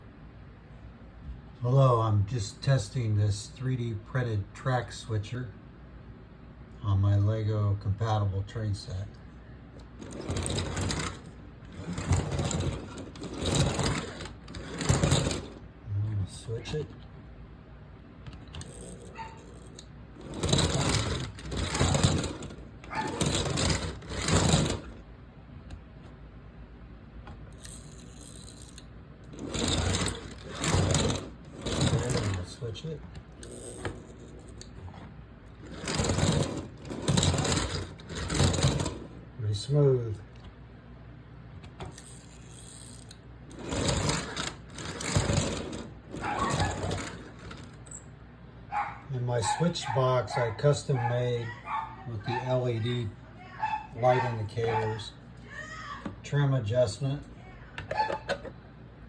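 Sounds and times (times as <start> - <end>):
toy train rattling on plastic track: 10.0 - 15.6, 18.6 - 25.0, 27.6 - 32.6, 33.4 - 34.7, 35.6 - 39.1, 41.9 - 47.8.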